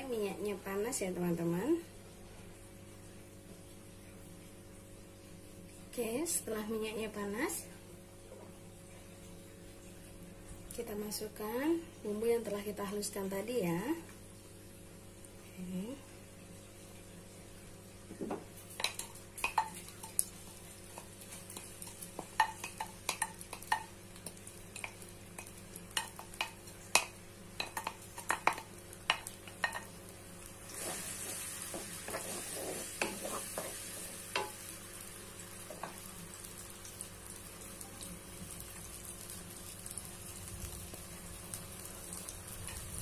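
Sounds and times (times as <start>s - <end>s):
spice paste sizzling in oil: 18.5s - 43.0s
wooden spatula scraping a wok: 30.7s - 34.2s.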